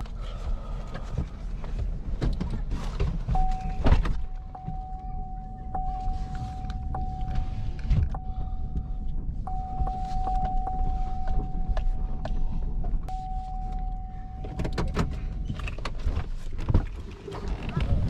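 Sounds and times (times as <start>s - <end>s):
wind rumbling on microphone: 14.4s - 18.0s.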